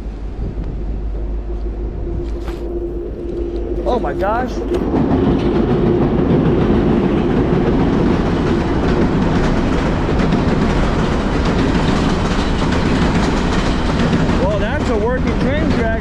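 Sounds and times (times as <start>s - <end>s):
train rumbling over rails: 0.0s - 16.0s.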